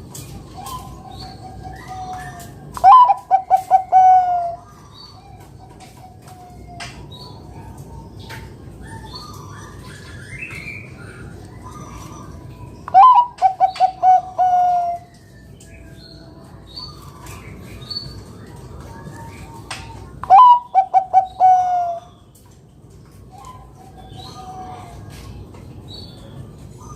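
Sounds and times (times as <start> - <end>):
small birds chirping: 0.0 - 26.9
dove cooing: 0.4 - 4.8, 8.8 - 15.1, 19.0 - 22.1, 23.3 - 25.3.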